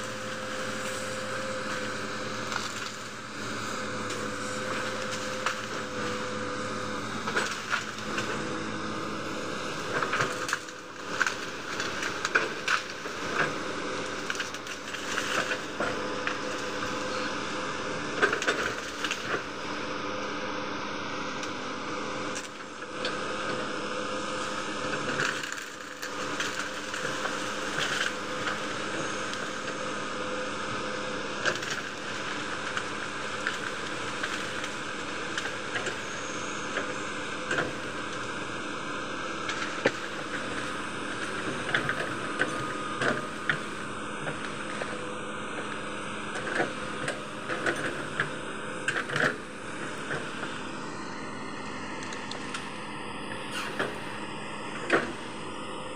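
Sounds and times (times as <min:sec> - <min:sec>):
excavator diesel engine running: 0:00.0 - 0:55.9
wood cracking and snapping: 0:04.1 - 0:05.8, 0:10.0 - 0:13.1, 0:14.0 - 0:15.6, 0:25.1 - 0:28.7, 0:31.5 - 0:36.0.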